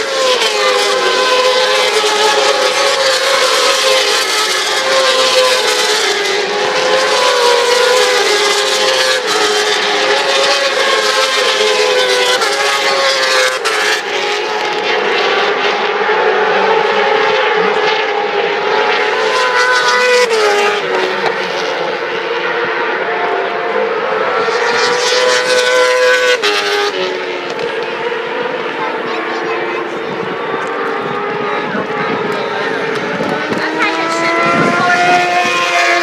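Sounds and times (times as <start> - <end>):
racing motorcycles at high revs: 0.0 - 36.0.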